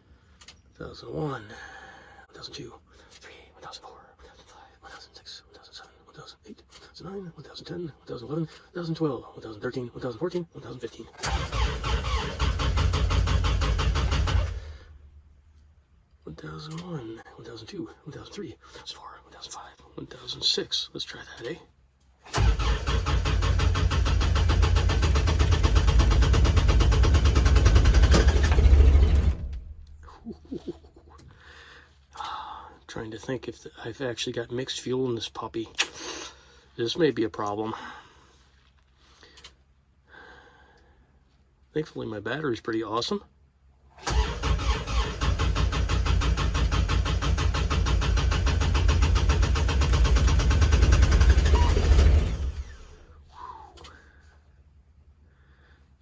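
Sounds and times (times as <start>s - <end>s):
engine cranking without starting: 11.2s - 15.0s, 22.3s - 30.7s, 44.0s - 53.2s.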